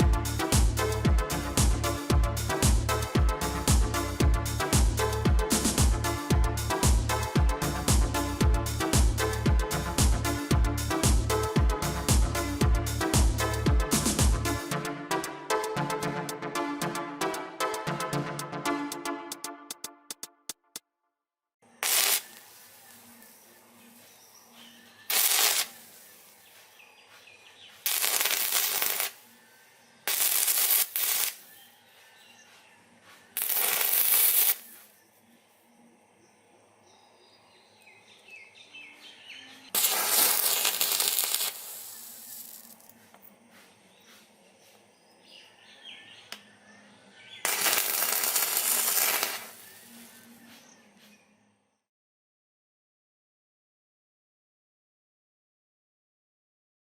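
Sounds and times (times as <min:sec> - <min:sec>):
arc welding crackling hiss: 0:21.8 - 0:24.2, 0:25.0 - 0:29.3, 0:30.0 - 0:31.5, 0:33.3 - 0:35.0, 0:39.7 - 0:43.2, 0:47.4 - 0:50.3.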